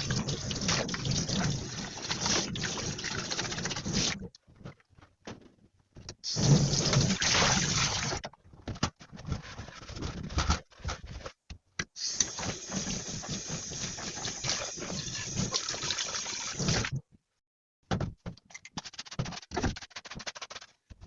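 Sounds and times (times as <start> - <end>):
water running in a sink: 0.0 - 4.2, 6.3 - 8.2, 12.0 - 17.0.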